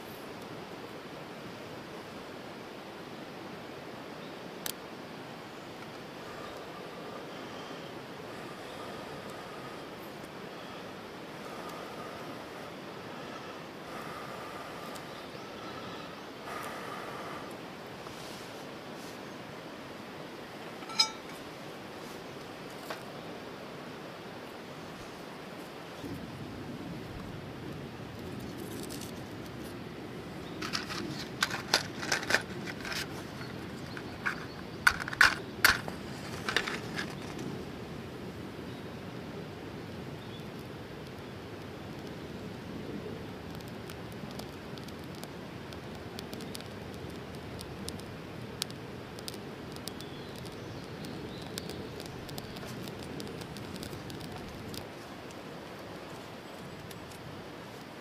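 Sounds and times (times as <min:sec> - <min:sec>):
campfire crackling: 0:00.0 - 0:58.0
sharp clicks and light knocks: 0:30.6 - 0:37.5, 0:43.5 - 0:55.4.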